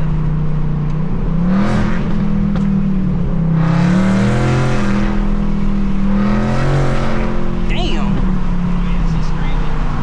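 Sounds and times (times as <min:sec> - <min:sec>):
car engine revving under load: 0:00.0 - 0:10.0.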